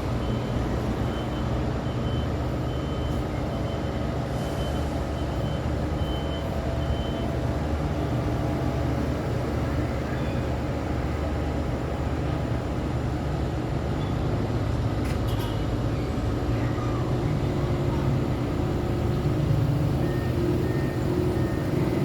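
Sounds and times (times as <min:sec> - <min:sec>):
traffic engine rumble: 0:00.0 - 0:22.0
faint high beep: 0:00.2 - 0:07.5, 0:10.0 - 0:10.6, 0:19.8 - 0:22.0.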